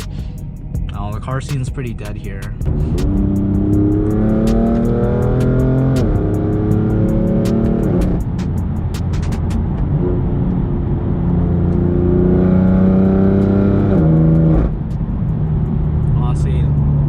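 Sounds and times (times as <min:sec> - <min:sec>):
car engine accelerating hard: 0:00.9 - 0:17.0
sharp clicks: 0:01.5 - 0:09.8.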